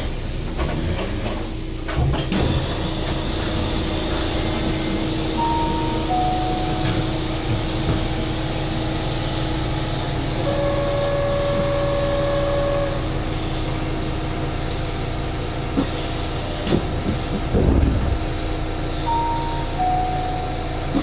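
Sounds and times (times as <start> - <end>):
train rumbling in tunnel: 0.0 - 21.0
steady whine: 4.6 - 9.0
short tones: 5.4 - 7.4, 19.0 - 21.0.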